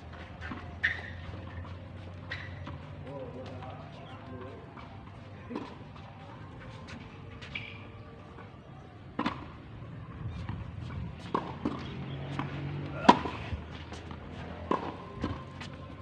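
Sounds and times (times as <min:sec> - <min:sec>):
tennis balls bouncing on court: 0:00.0 - 0:06.0, 0:09.1 - 0:16.0
tennis balls struck by rackets: 0:09.1 - 0:16.0.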